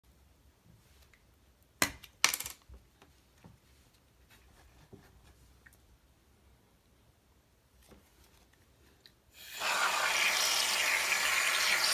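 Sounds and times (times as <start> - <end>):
faint taps and rubbing: 4.2 - 5.5.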